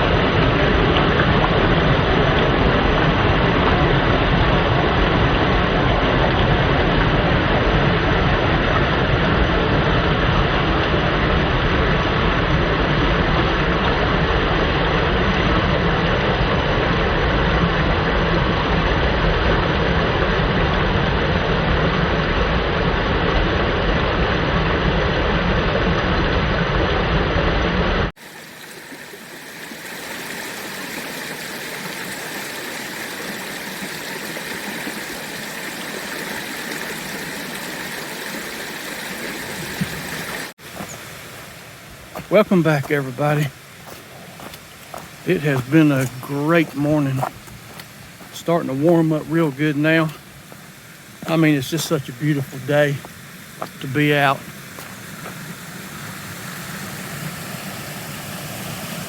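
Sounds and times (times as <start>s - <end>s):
creek waterfall rushing: 28.2s - 59.0s.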